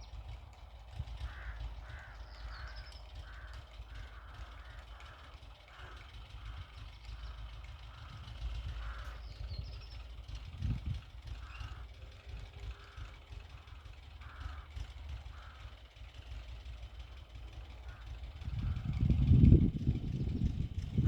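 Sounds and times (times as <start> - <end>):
crows cawing: 1.0 - 10.0, 11.0 - 19.1
low rumble: 18.3 - 21.0.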